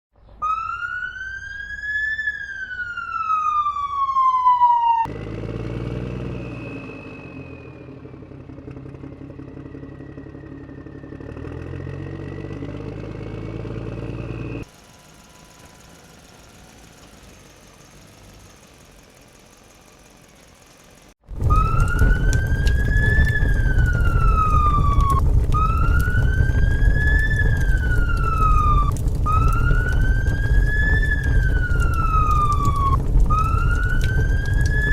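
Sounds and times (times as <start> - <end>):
wailing siren: 0.4 - 18.8, 21.3 - 34.9
low rumble: 21.2 - 34.9.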